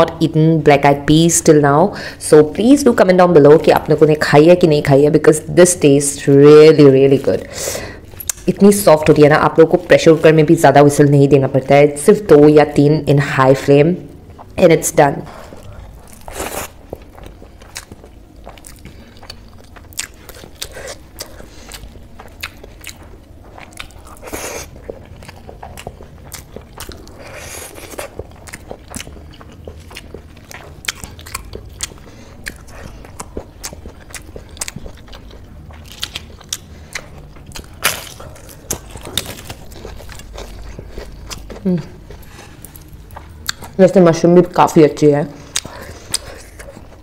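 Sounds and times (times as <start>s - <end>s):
person chewing food: 7.8s - 8.4s, 15.3s - 43.8s, 45.4s - 47.0s.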